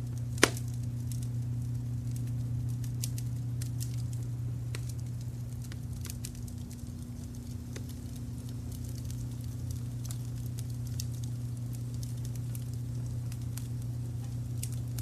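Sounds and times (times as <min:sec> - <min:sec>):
low brown noise rumble: 0:00.0 - 0:15.0
wood fire crackling and popping: 0:00.0 - 0:15.0.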